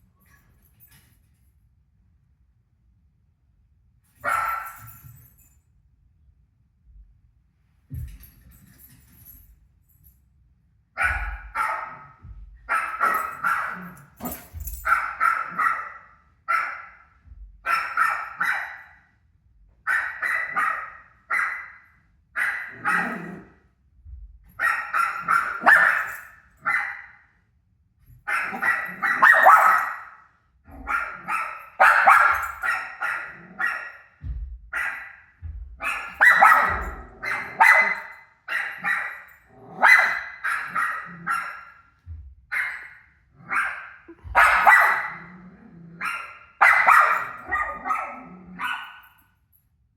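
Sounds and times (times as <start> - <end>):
dog barking: 4.2 - 4.9, 11.0 - 19.0, 19.9 - 23.5, 24.6 - 27.2, 28.2 - 34.1, 34.8 - 41.8, 42.5 - 45.3, 46.0 - 49.2.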